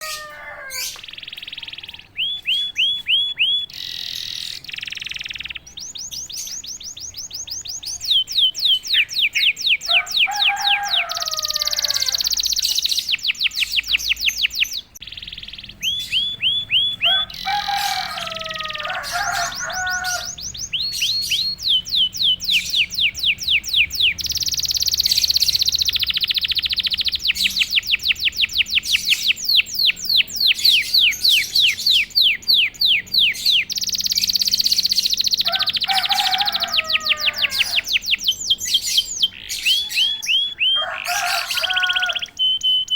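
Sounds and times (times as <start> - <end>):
canary singing trills: 0.0 - 42.9.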